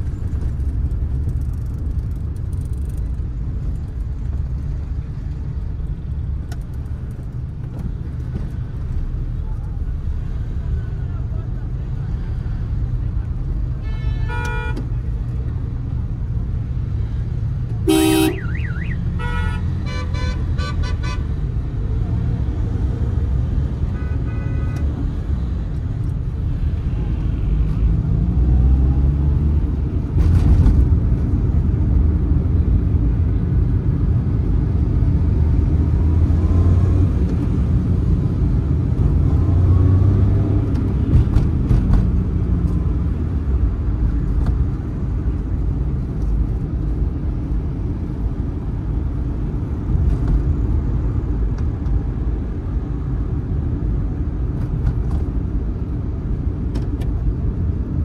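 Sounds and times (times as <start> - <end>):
car engine rumble: 0.0 - 58.0
road noise inside car: 0.0 - 58.0.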